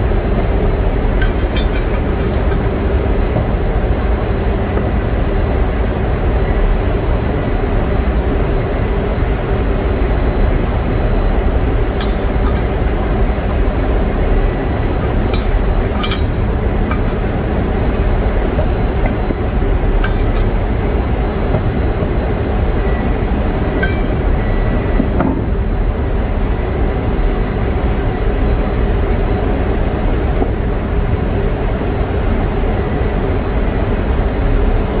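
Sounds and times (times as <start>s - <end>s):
diesel generator engines rumbling: 0.0s - 31.4s
metallic clinks: 0.5s - 3.4s, 11.8s - 22.2s, 22.8s - 24.8s.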